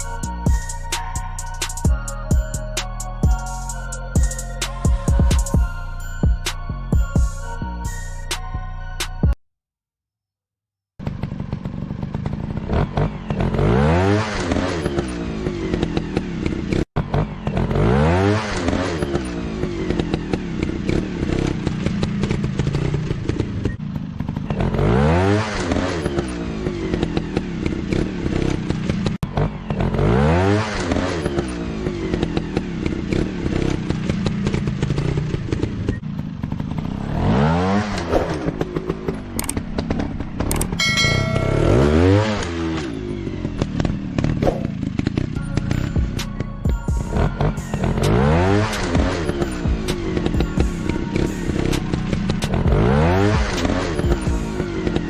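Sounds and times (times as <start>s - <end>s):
dirt bike engine revving: 11.0s - 55.0s.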